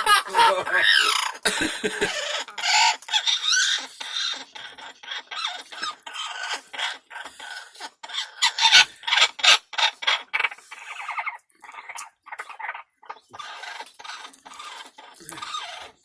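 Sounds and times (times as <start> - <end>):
parrot squawking: 0.0 - 1.4, 2.0 - 16.0.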